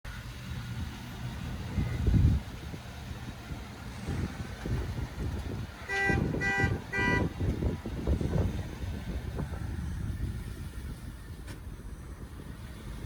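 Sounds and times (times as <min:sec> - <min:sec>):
low engine rumble: 0:00.1 - 0:13.0
vehicle horn blasts: 0:05.8 - 0:07.4.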